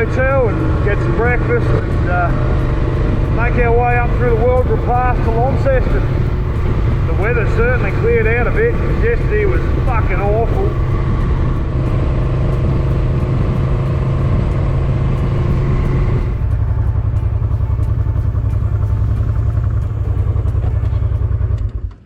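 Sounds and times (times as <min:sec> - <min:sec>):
wind noise on microphone: 0:00.0 - 0:21.2
motorcycle engine running: 0:00.0 - 0:22.0.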